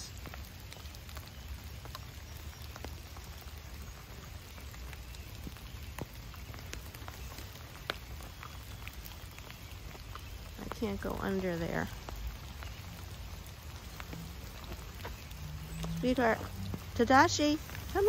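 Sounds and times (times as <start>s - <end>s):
light rain falling: 0.0s - 18.0s
raindrops ticking: 0.0s - 18.0s.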